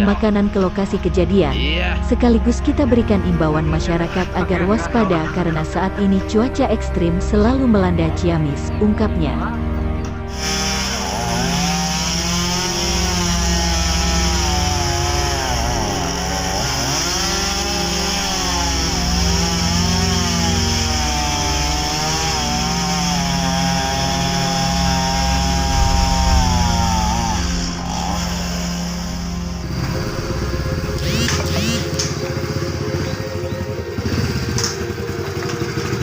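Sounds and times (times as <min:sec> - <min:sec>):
chainsaw running: 0:10.0 - 0:36.0.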